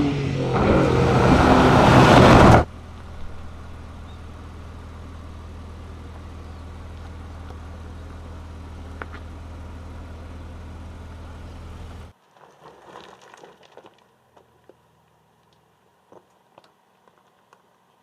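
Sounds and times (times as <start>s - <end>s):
car engine and road drone: 0.0s - 12.2s.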